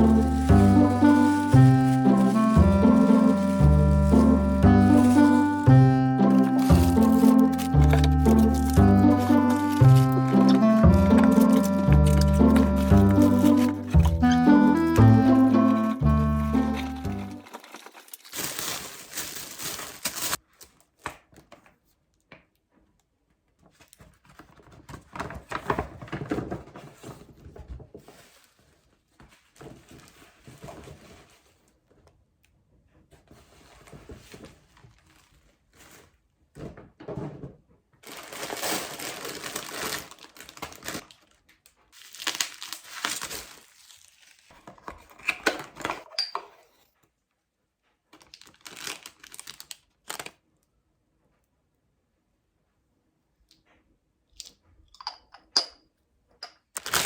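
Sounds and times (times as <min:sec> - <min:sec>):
crinkling and rustling: 0:00.0 - 0:47.1, 0:47.8 - 0:50.4, 0:56.8 - 0:57.0.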